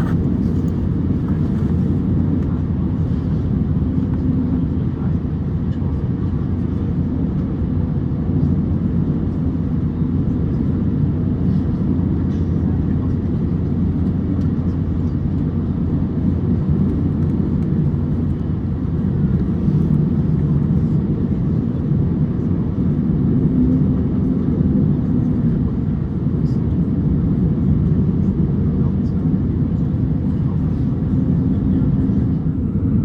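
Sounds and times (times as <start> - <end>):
airplane cabin rumble: 0.0 - 33.0.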